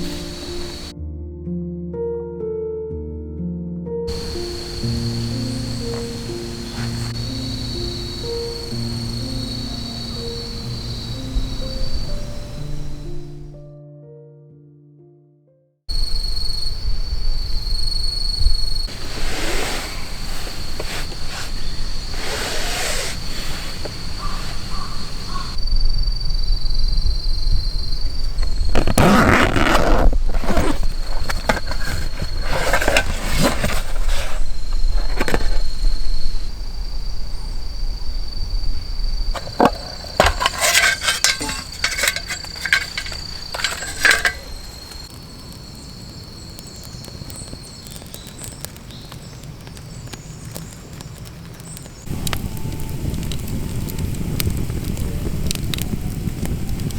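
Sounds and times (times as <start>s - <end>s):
handling clinks and scrapes: 0.0s - 0.9s, 4.1s - 7.3s, 18.9s - 25.6s, 28.4s - 35.8s, 39.4s - 45.1s
insect trill: 0.0s - 0.9s, 4.1s - 13.5s, 15.9s - 51.1s
wind rumble on microphone: 15.9s - 22.6s, 23.2s - 40.1s, 49.2s - 56.9s.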